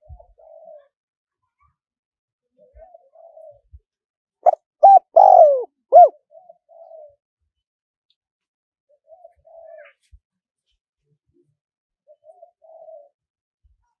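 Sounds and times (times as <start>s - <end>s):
dove cooing: 0.0s - 0.9s, 4.4s - 7.1s, 12.2s - 13.1s.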